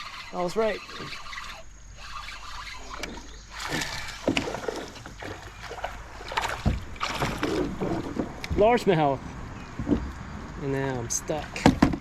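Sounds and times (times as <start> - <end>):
water splashing around kayak: 0.0 - 12.0
short knocks: 11.6 - 12.0.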